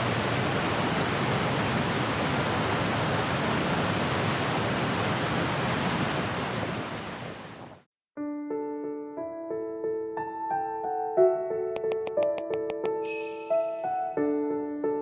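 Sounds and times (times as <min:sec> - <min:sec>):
waterfall roaring: 0:00.0 - 0:07.8
keyboard music with ringing notes: 0:08.4 - 0:15.0.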